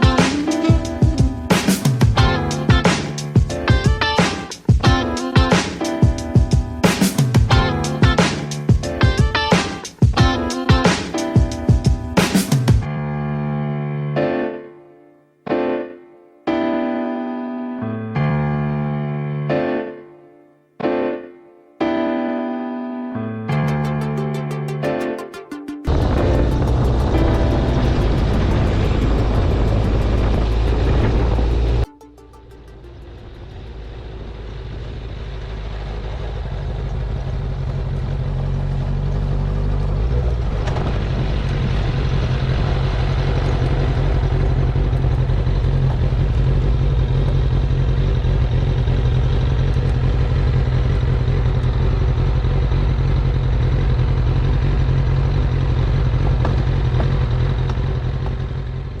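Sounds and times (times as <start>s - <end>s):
motorcycle engine running: 0.0s - 4.0s, 6.3s - 9.3s, 25.9s - 31.9s, 32.6s - 59.0s.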